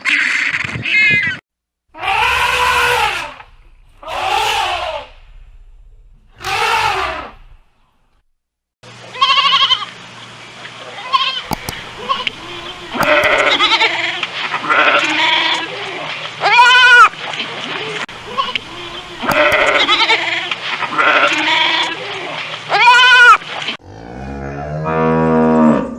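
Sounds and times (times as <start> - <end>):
harsh animal call: 0.0 - 5.6, 6.3 - 7.6, 11.0 - 17.1, 17.8 - 23.4
steady low hum: 1.9 - 8.3, 11.4 - 14.5, 18.1 - 20.1
goat bleating: 9.1 - 9.9, 11.0 - 15.8, 16.4 - 17.1, 18.3 - 22.0, 22.7 - 23.4.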